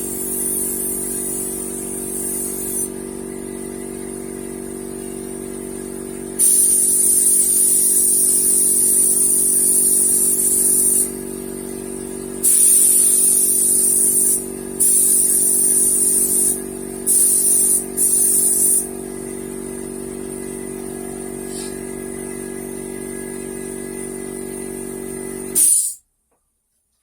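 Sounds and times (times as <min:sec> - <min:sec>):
spray gun hissing: 0:00.0 - 0:03.0, 0:06.4 - 0:11.2, 0:12.4 - 0:18.9, 0:25.6 - 0:26.0.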